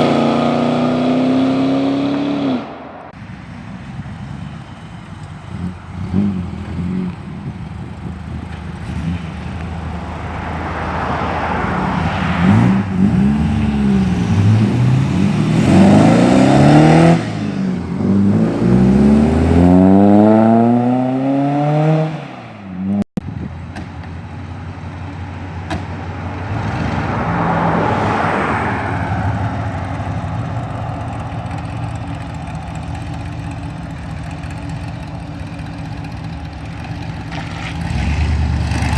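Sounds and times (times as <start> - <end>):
engine revving: 0.0 - 3.2, 7.9 - 23.0, 26.3 - 33.5, 37.1 - 38.9
car engines idling: 2.8 - 19.9, 23.2 - 38.9
car passing by: 8.8 - 22.6, 26.1 - 33.4.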